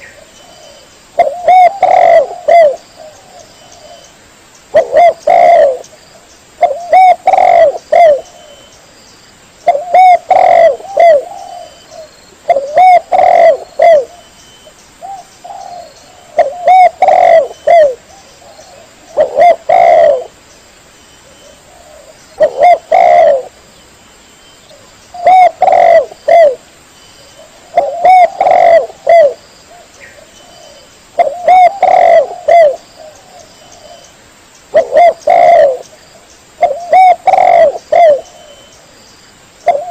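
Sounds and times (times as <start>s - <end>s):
dove cooing: 0.0s - 4.1s, 4.7s - 5.9s, 6.6s - 8.7s, 9.6s - 14.3s, 15.0s - 20.4s, 21.2s - 23.6s, 24.7s - 26.6s, 27.3s - 34.1s, 34.7s - 35.9s, 36.6s - 38.7s, 39.6s - 39.9s.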